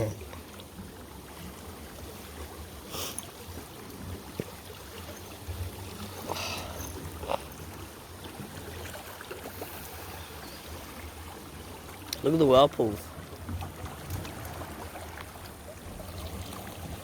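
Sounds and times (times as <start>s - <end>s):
rumble of moving water: 0.0s - 17.0s
wind: 0.0s - 17.0s
water splashing: 1.4s - 17.0s.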